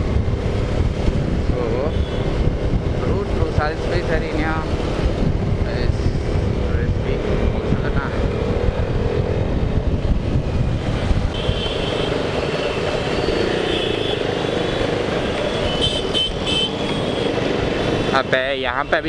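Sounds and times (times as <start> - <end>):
high vehicle tone: 0.0 - 19.0.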